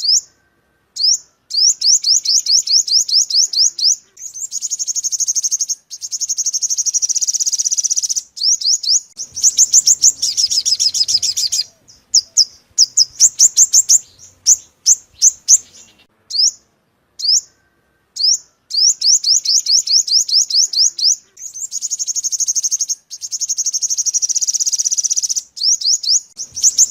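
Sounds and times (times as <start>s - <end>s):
sunbird song trills: 0.0s - 26.9s.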